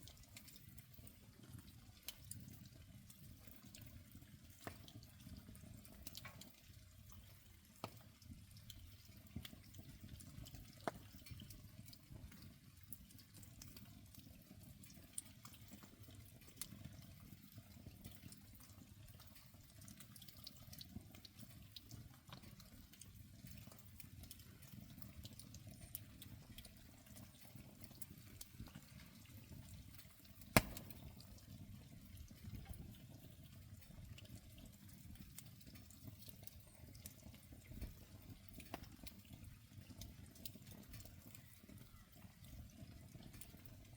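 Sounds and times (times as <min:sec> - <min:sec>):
fire crackling: 0:00.0 - 0:41.1
wet wood campfire hissing: 0:30.0 - 0:31.2
sharp pop of fire: 0:30.4 - 0:31.3.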